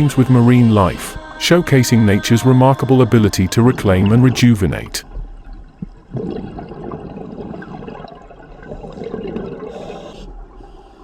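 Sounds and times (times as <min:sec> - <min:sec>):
underwater bubbling and gurgling: 0:02.9 - 0:11.0.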